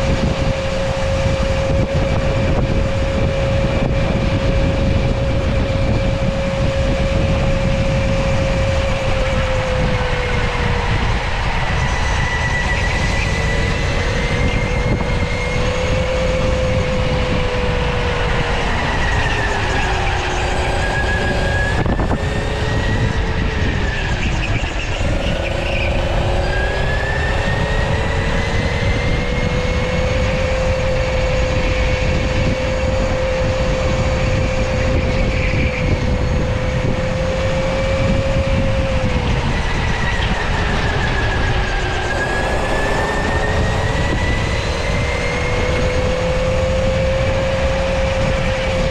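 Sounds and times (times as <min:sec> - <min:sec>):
electric go-kart motor whining: 0:00.0 - 0:48.9
heavy low rumble: 0:00.0 - 0:48.9.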